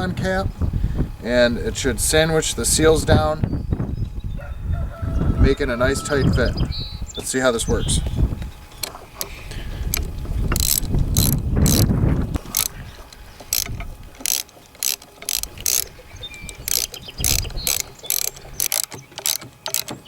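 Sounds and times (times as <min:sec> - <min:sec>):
low handling rumble: 0:00.0 - 0:20.0
ratchet wrench clicking: 0:08.8 - 0:20.0.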